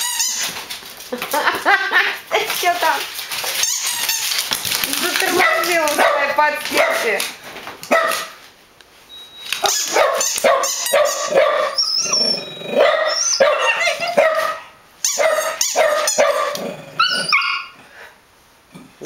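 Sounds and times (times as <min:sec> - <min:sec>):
dogs barking: 0:05.2 - 0:07.2, 0:07.9 - 0:08.4, 0:09.6 - 0:17.8.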